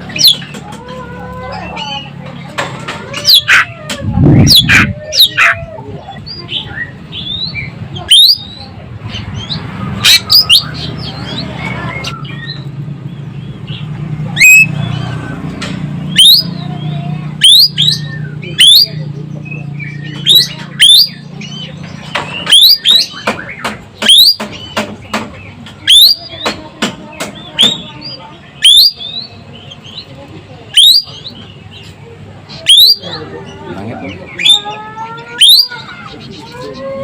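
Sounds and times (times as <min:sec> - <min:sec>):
bird whistles and chirps: 0:06.2 - 0:08.6, 0:28.6 - 0:29.4, 0:30.8 - 0:31.2.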